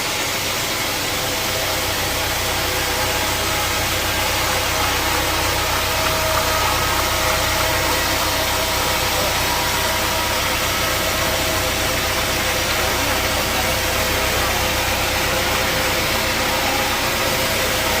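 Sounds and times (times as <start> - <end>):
sawmill saw machinery running: 0.0 - 18.0.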